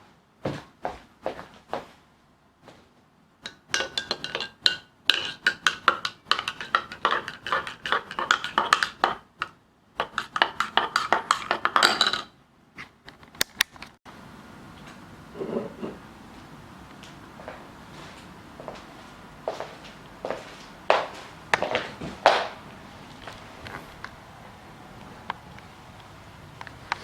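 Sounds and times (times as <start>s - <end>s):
kitchenware clinking and knocking: 3.5s - 12.4s, 15.4s - 16.0s.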